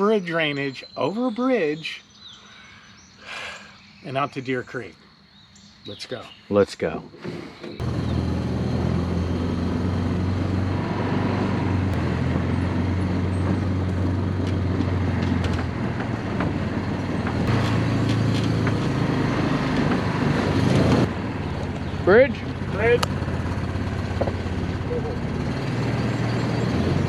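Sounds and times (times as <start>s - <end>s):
utility vehicle engine droning: 7.1s - 27.0s.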